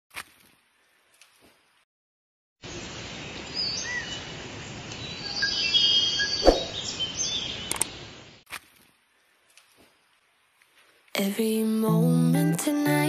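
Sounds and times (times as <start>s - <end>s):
birds chirping: 5.0s - 8.0s
sharp click: 7.7s - 7.9s.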